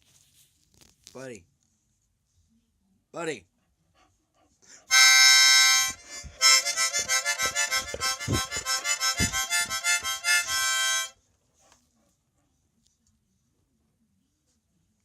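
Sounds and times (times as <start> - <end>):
harmonica chords: 4.9 - 11.2.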